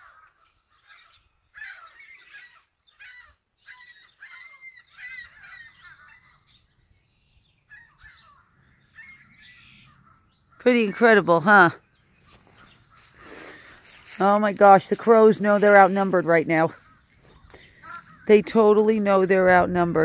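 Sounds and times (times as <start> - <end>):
gulls calling: 7.7 - 20.0.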